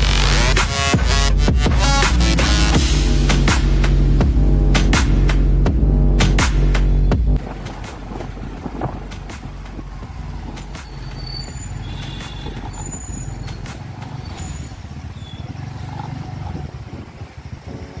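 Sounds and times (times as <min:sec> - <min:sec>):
tyres rolling over paving: 0:07.4 - 0:17.4
scooter engine running: 0:07.4 - 0:18.0
high-pitched squeaks and clicks: 0:10.5 - 0:16.1.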